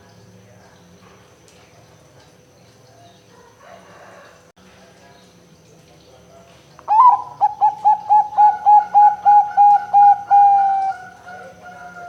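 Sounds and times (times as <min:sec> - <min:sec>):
dove cooing: 0:06.9 - 0:12.0.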